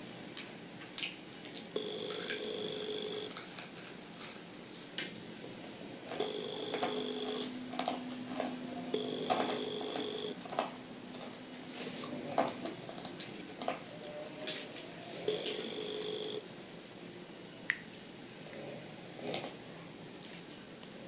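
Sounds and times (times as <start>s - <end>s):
chewing crispy food: 0.3s - 5.3s.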